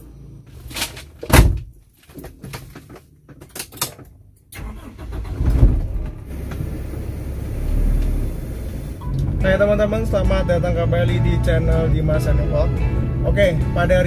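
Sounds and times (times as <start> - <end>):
car engine starting and idling: 4.5 - 11.1.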